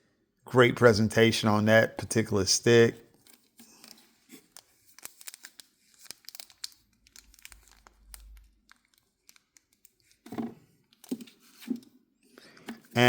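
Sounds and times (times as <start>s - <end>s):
faint crinkling: 3.0s - 13.0s.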